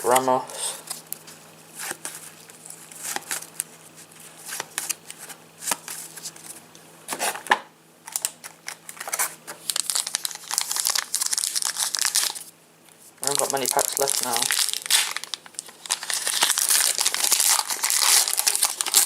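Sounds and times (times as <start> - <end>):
cards being handled: 0.0 - 6.6, 13.2 - 19.0
foil packet crinkling: 0.8 - 6.6, 8.0 - 12.5, 13.2 - 19.0.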